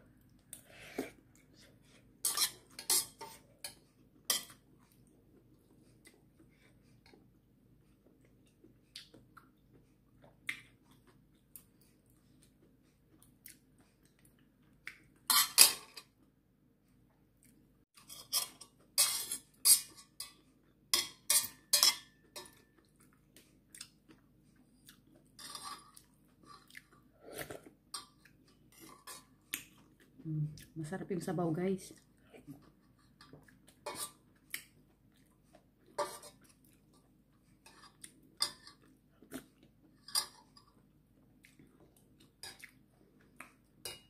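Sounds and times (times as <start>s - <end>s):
chewing: 22.2s - 30.8s, 31.9s - 43.8s.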